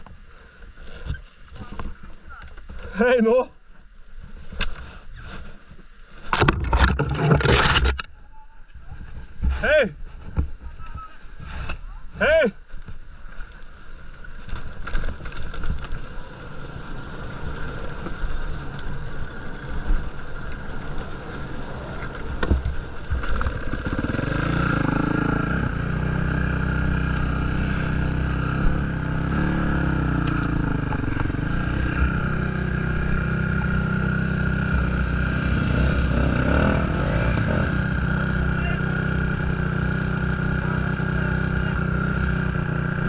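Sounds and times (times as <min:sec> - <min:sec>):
dirt bike engine: 0:06.3 - 0:08.1, 0:13.2 - 0:43.0.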